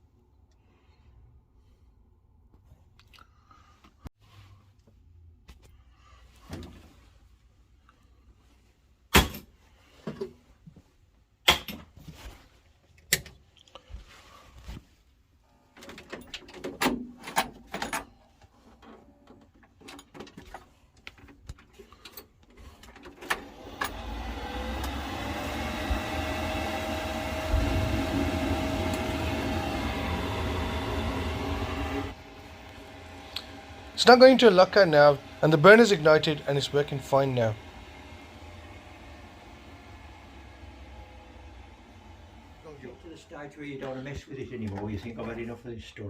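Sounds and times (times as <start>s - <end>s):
boiler fan running: 23.2s - 45.5s
faint rising tone: 23.8s - 43.1s.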